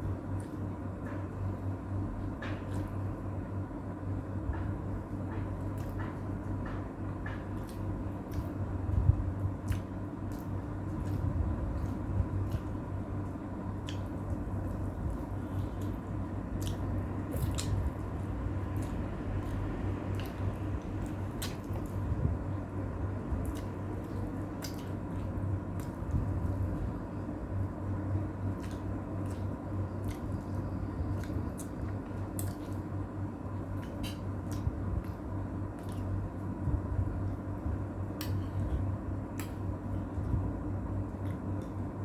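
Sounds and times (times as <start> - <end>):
steady low hum: 0.0 - 42.0
person chewing: 7.5 - 22.2, 23.3 - 27.1, 28.2 - 33.0, 33.6 - 35.2, 35.8 - 36.3.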